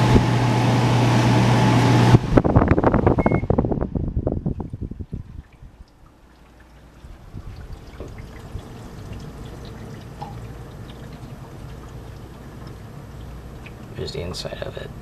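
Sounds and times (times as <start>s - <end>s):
air conditioner running: 0.0s - 15.0s
trickling water-like sound: 4.6s - 14.6s.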